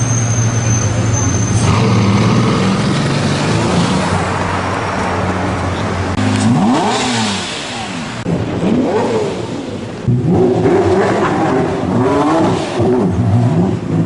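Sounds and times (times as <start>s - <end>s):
street traffic: 0.0s - 14.0s
sports car engine revving: 5.5s - 14.0s.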